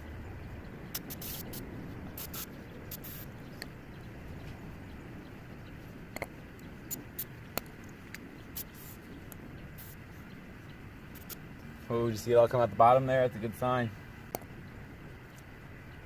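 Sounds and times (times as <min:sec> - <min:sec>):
aerosol spray hisses: 0:01.0 - 0:01.6, 0:02.2 - 0:03.3
clicks and taps of parts: 0:07.5 - 0:08.2.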